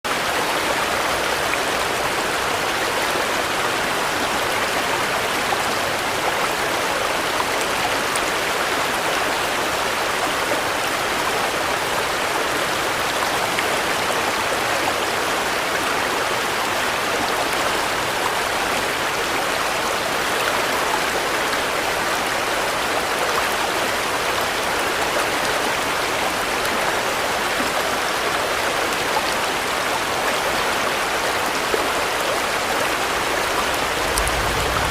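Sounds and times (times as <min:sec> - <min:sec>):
steady rain falling: 0:00.1 - 0:34.9
ticks of raindrops: 0:33.5 - 0:34.9.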